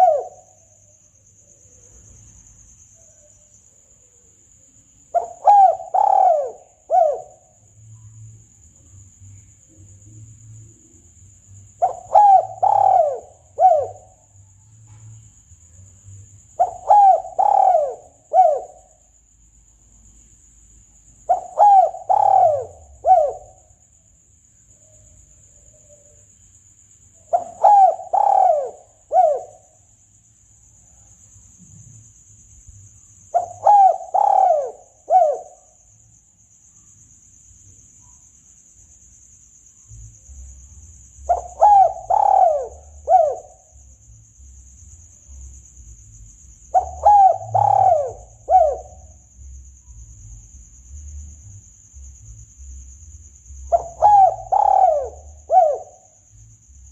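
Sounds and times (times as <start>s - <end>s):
dove cooing: 0.0s - 0.6s, 5.1s - 7.5s, 11.8s - 14.2s, 16.6s - 19.0s, 21.2s - 23.7s, 27.3s - 29.8s, 33.3s - 35.7s, 41.3s - 43.7s, 46.7s - 49.1s, 53.7s - 56.2s.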